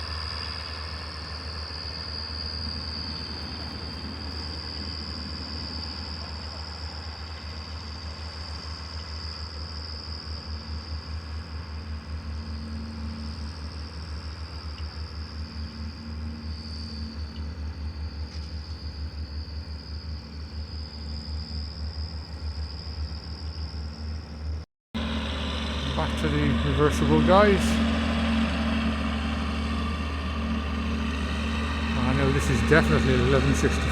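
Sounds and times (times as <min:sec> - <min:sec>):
tractor diesel engine running: 0:00.0 - 0:20.6, 0:24.1 - 0:33.9
high whine: 0:25.0 - 0:33.9.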